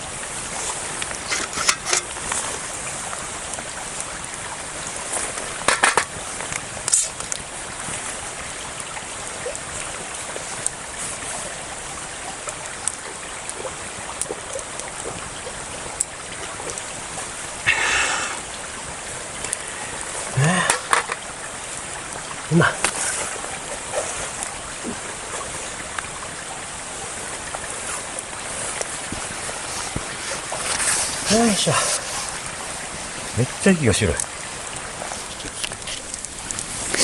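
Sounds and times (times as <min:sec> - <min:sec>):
stream flowing: 0:00.0 - 0:37.0.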